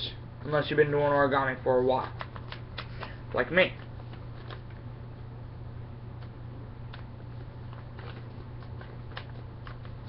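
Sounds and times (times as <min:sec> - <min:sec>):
low electrical hum: 0:00.0 - 0:10.0
paper being folded: 0:07.5 - 0:10.0.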